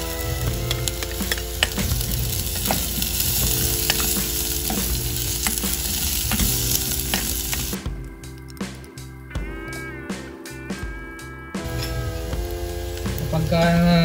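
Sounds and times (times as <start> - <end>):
potatoes sizzling in hot oil: 0.0 - 7.8.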